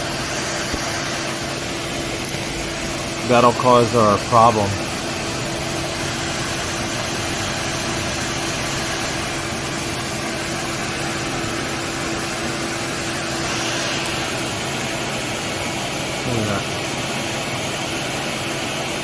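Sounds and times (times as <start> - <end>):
car engine idling: 2.0 - 15.1.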